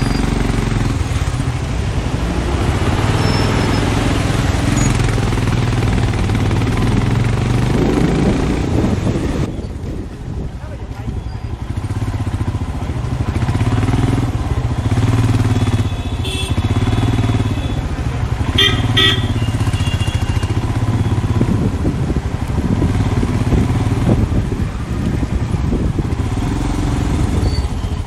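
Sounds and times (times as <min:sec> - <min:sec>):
motorcycle engine running: 0:00.0 - 0:28.0
vehicle horn beeps: 0:15.6 - 0:17.9, 0:18.5 - 0:21.2.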